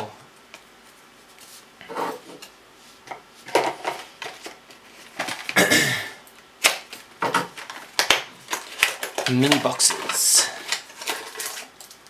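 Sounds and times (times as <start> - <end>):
cards and packaging rustling: 3.4 - 5.6, 6.6 - 12.0.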